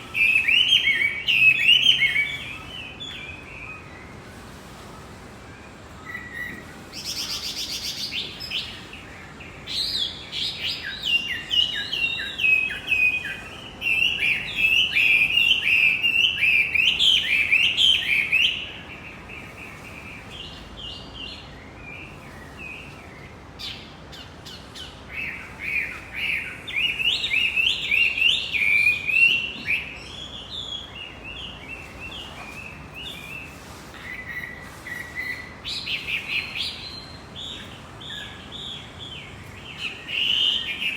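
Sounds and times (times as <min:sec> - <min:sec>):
songbird singing chattering notes: 0:00.0 - 0:04.1.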